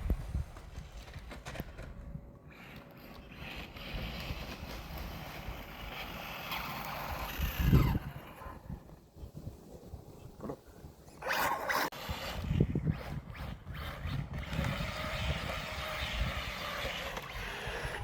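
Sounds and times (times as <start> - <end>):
tyres scrabbling over rough ground: 0.0 - 9.1
electric motor whining: 2.6 - 8.7, 11.2 - 18.0.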